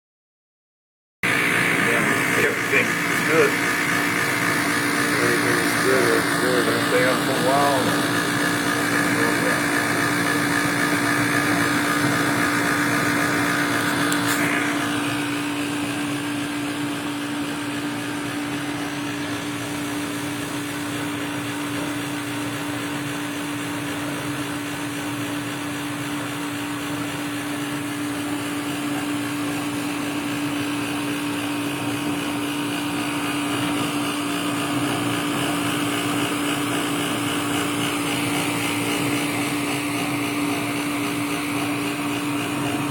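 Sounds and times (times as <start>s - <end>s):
blower air noise: 1.2s - 42.9s
furnace humming: 1.2s - 42.9s
high-pitched whine: 1.3s - 12.3s.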